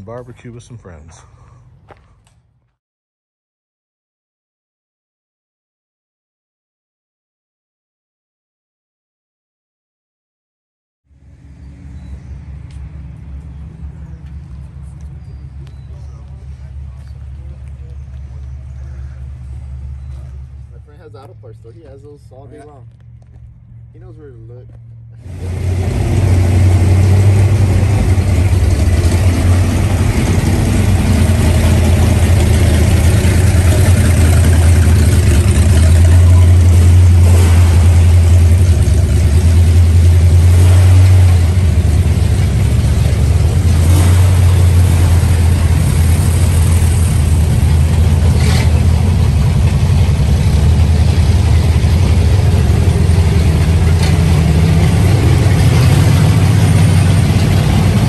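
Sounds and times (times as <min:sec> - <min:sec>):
car engine idling loudly: 0:25.2 - 0:58.0.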